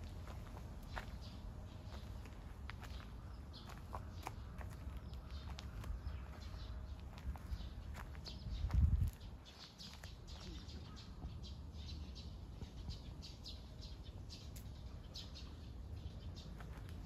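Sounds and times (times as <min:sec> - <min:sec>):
small birds chirping: 0:00.0 - 0:17.0
low rumble on microphone: 0:05.4 - 0:09.4.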